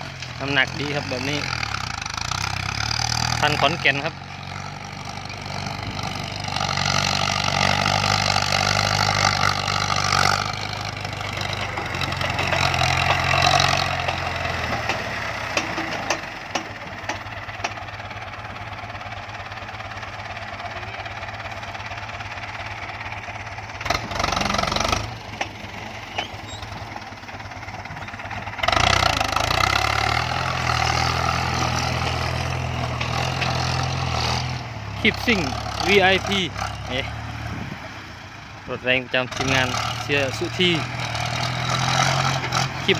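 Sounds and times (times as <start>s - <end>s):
truck diesel engine running: 0.0s - 42.9s
knocks and clicks: 11.4s - 17.8s.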